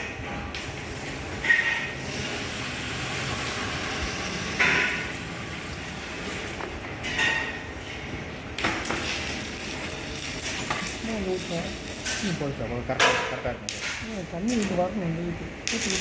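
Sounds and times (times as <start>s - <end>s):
water pouring into metal drum: 0.6s - 6.6s.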